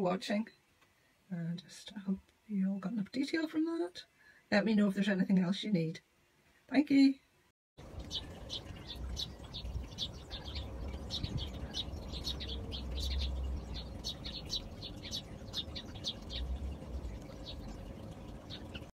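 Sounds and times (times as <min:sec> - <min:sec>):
small birds chirping: 0:07.8 - 0:18.9.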